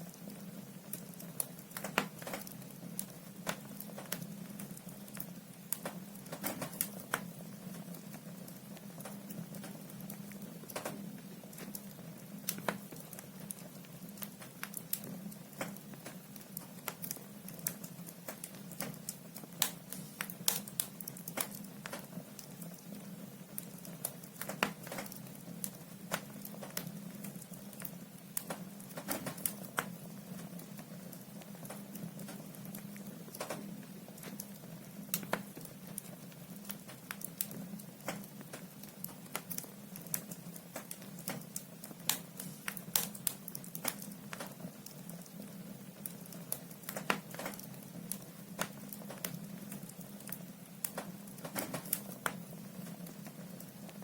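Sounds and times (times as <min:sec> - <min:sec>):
firewood crackling and snapping: 0:00.1 - 0:54.0.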